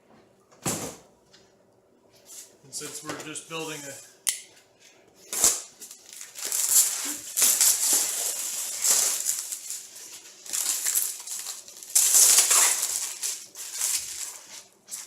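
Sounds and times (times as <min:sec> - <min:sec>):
packaging rustling and crinkling: 0:05.3 - 0:15.0.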